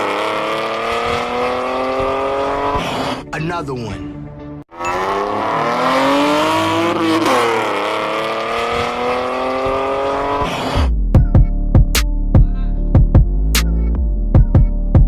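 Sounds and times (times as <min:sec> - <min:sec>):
car engine accelerating hard: 0:00.0 - 0:03.2, 0:04.8 - 0:10.9
electronic music with heavy beat: 0:09.6 - 0:15.0.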